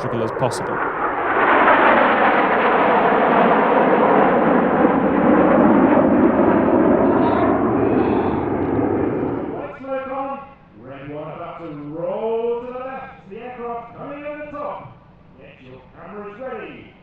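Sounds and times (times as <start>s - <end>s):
jets passing low overhead: 0.0s - 10.3s.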